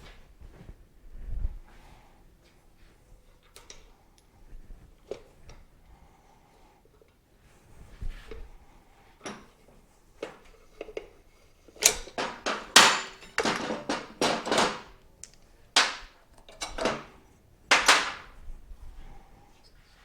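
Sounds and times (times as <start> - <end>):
metal clanks and knocks: 11.8 - 15.0, 15.8 - 17.1, 17.7 - 18.3.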